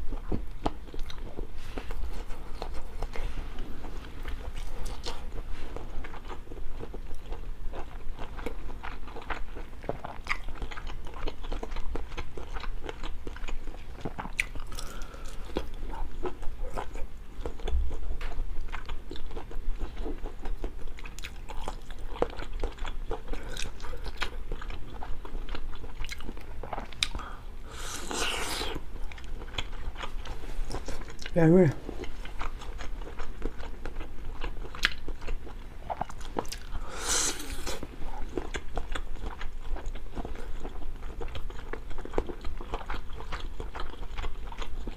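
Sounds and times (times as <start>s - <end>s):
biting and chewing food: 0.0s - 44.9s.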